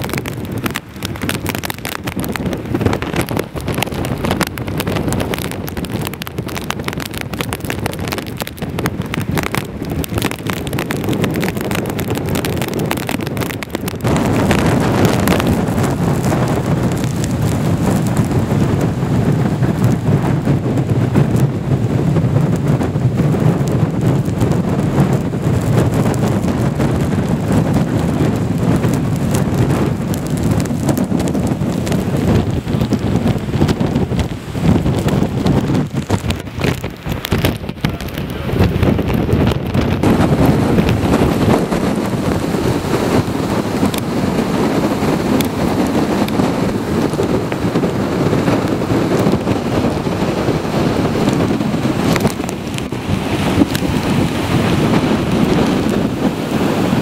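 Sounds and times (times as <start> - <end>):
rain: 0.0 - 57.0
wind buffeting microphone: 0.0 - 57.0.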